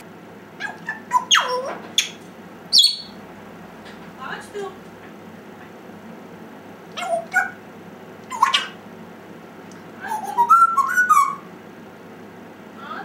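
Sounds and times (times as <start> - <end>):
parrot whistling and calling: 0.6 - 3.2, 7.0 - 7.6, 8.3 - 8.8, 10.0 - 11.5.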